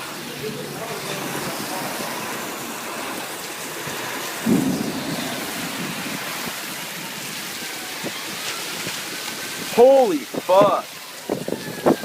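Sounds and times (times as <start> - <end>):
heavy rain hissing: 0.0 - 12.0
low thunder burst: 4.3 - 8.1.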